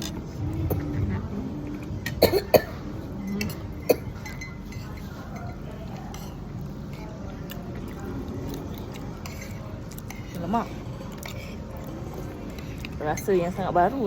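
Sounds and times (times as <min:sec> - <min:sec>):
background murmur: 0:00.0 - 0:14.0
cutlery clinking on a plate: 0:04.2 - 0:06.4.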